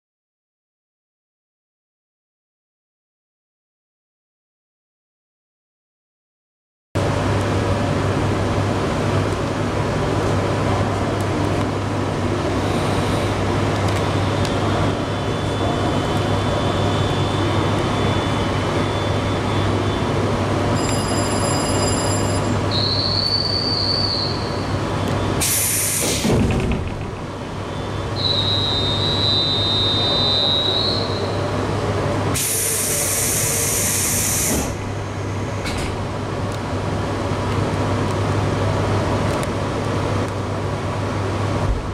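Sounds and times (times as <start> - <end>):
train rumble and low hum: 7.0 - 41.9
short high-pitched tones: 20.8 - 24.3
compressed air hissing: 25.4 - 26.3, 32.4 - 34.8.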